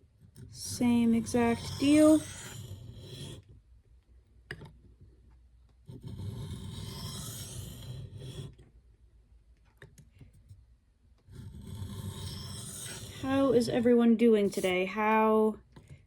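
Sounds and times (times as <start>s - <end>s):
knife scraping on whetstone: 0.6s - 3.4s, 5.9s - 8.6s, 11.3s - 13.8s, 14.4s - 14.8s.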